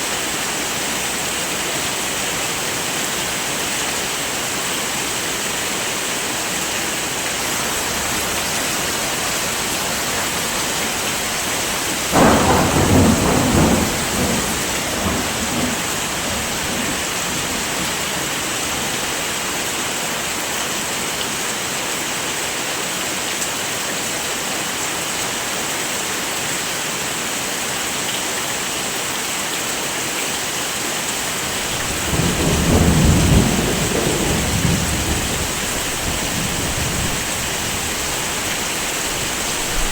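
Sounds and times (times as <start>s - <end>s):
heavy rain falling: 0.0s - 39.9s
thunder rolling: 7.4s - 18.6s, 31.4s - 39.9s.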